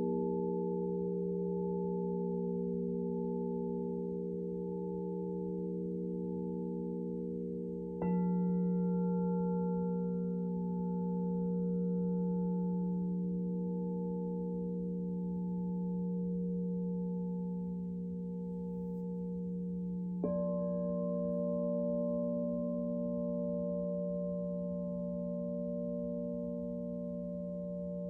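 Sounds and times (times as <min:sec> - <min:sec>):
singing bowls ringing: 0:00.0 - 0:28.0.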